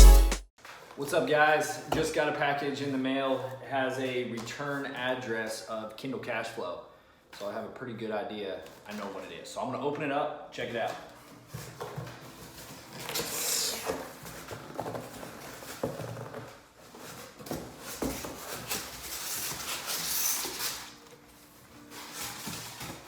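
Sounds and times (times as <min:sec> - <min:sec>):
cardboard package rustling and tearing: 0:11.3 - 0:23.0.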